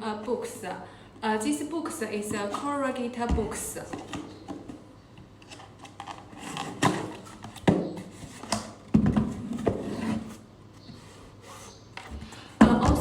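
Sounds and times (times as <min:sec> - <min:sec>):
cardboard scraping rustles: 0:05.4 - 0:12.4.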